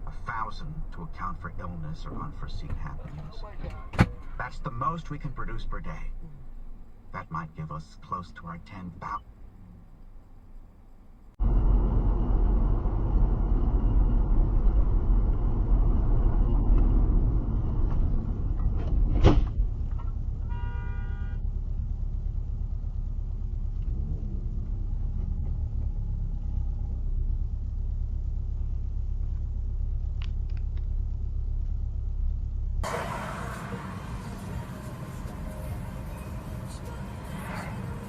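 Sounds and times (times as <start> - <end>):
car rumbling on road: 0.0 - 38.0
car horn blast: 20.4 - 21.5.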